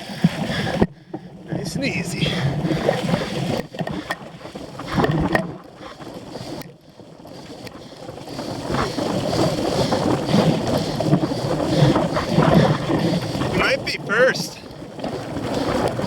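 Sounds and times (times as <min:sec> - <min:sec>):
bike rattling over rough ground: 0:00.0 - 0:16.0
wind rushing over microphone: 0:08.3 - 0:16.0.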